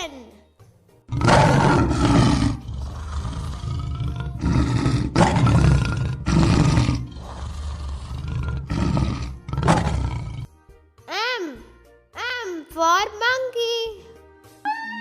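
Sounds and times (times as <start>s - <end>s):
lion roaring: 1.1s - 10.5s.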